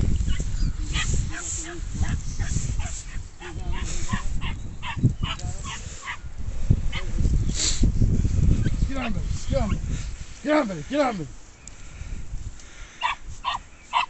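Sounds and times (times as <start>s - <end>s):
wind rumble on microphone: 0.0s - 13.8s
dog yapping: 4.4s - 5.4s, 13.0s - 14.0s.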